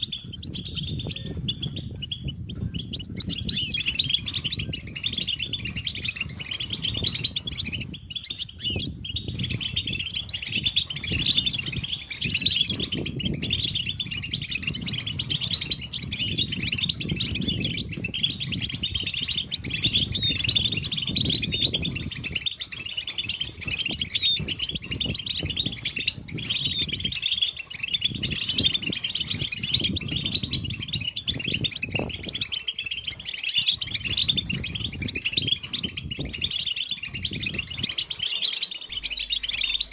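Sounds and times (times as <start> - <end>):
goldfinches twittering: 0.0 - 39.9
low rumble: 38.9 - 39.9.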